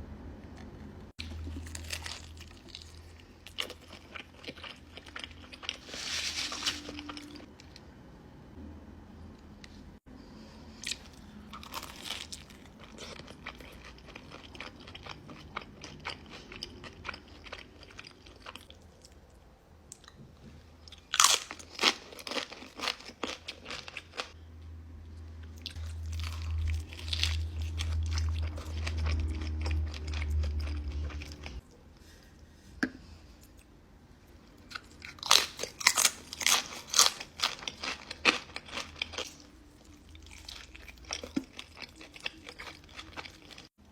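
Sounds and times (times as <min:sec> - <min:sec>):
crunching and chewing food: 0:00.5 - 0:07.8, 0:10.7 - 0:20.2, 0:20.8 - 0:24.4, 0:25.1 - 0:31.8, 0:34.3 - 0:43.9
low rumble: 0:24.5 - 0:31.6.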